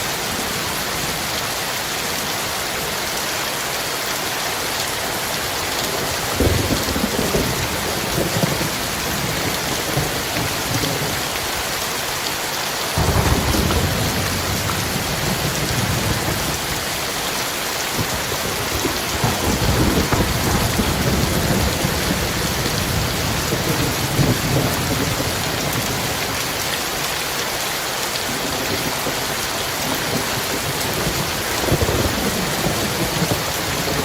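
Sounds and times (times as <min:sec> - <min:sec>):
heavy rain falling: 0:00.0 - 0:34.0
thunder rumbling: 0:05.9 - 0:11.3, 0:13.0 - 0:17.0, 0:17.9 - 0:26.6, 0:29.9 - 0:34.0.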